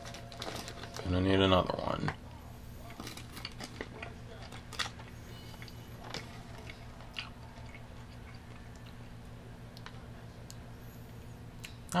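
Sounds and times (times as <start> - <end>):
plastic bag crinkling: 0.0 - 2.0
person chewing gummy candy: 2.8 - 9.0.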